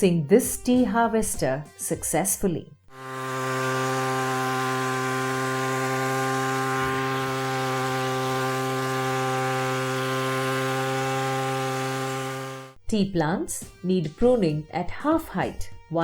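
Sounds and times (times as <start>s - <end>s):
two-stroke engine buzzing: 2.9s - 12.8s.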